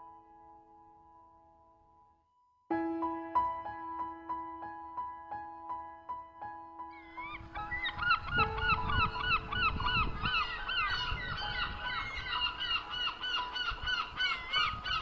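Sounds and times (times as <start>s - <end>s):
seagulls calling: 6.9s - 15.0s.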